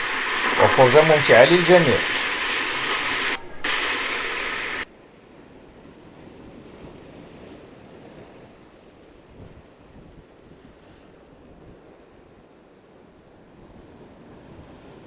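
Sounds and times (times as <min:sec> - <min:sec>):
sea waves washing in: 0:00.0 - 0:04.9.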